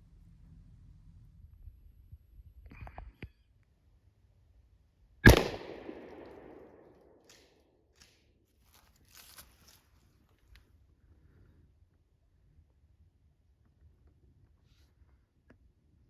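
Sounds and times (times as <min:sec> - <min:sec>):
shotgun shot echoing: 0:05.3 - 0:06.9.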